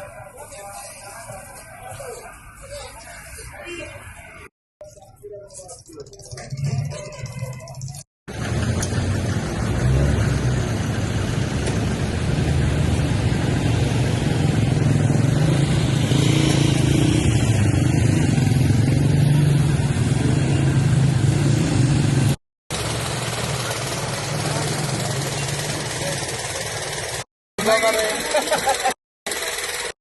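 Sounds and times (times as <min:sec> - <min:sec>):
vehicle engine humming: 0:05.7 - 0:28.6.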